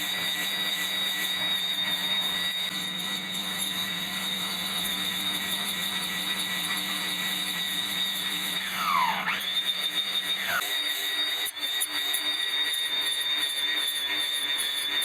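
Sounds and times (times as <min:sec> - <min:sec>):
grass trimmer motor whining: 0:00.0 - 0:11.1.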